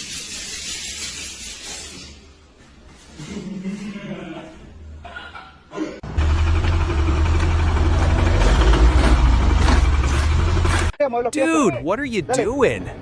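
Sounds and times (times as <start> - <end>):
heavy machinery engine rumble: 6.0 - 11.0.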